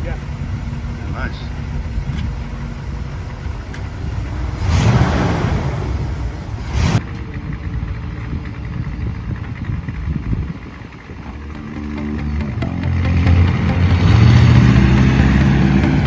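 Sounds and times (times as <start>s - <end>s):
truck engine accelerating: 0.0s - 16.0s.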